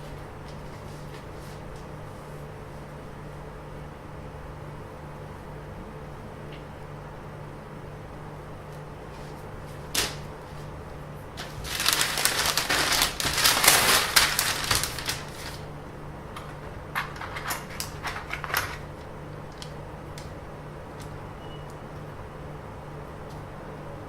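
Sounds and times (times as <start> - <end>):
dense rustling and crackling: 11.3 - 15.8.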